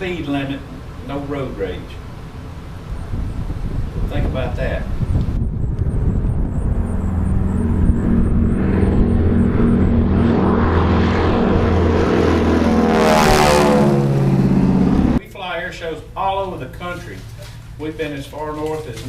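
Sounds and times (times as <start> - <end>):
propeller airplane engine drone: 0.0 - 15.2.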